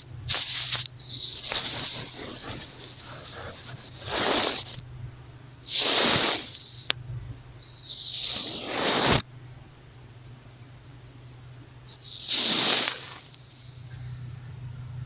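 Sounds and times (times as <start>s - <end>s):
makeup brush swishing on microphone: 0.3s - 4.8s.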